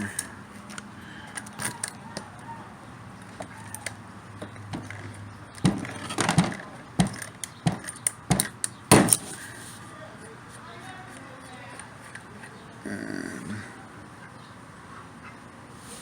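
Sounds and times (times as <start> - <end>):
small parts and tools clattering: 3.2 - 9.6.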